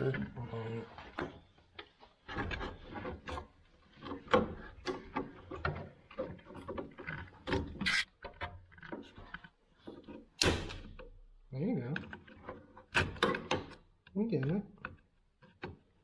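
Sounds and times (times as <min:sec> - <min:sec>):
hand tools scraping and snipping: 0:07.1 - 0:08.1
sharp click: 0:10.4 - 0:10.9.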